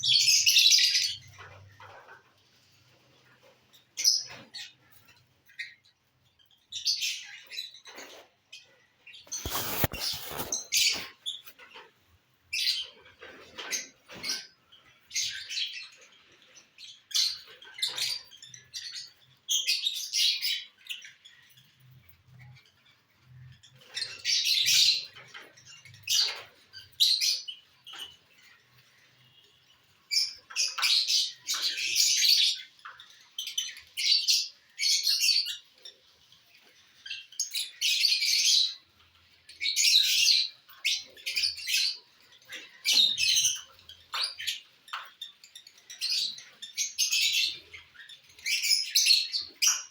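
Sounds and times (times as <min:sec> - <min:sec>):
lovebirds chirping: 0:00.0 - 0:11.9.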